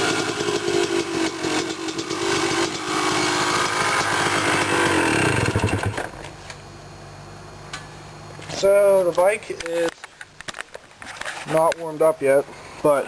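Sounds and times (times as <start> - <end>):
dirt bike engine revving: 0.0 - 6.2
dirt bike engine idling: 0.0 - 6.3.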